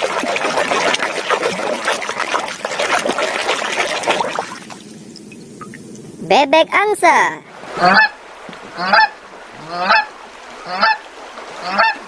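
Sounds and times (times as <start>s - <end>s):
water splashing over plastic toy: 0.0s - 5.8s.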